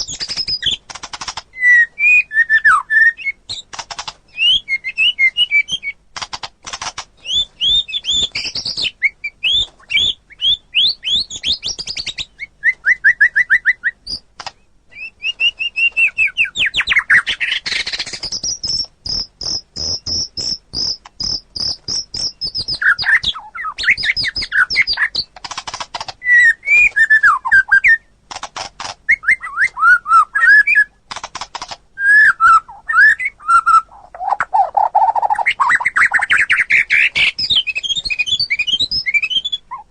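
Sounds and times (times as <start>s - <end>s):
bird singing: 0.0s - 6.0s, 7.2s - 28.2s, 29.1s - 31.0s, 32.0s - 39.9s.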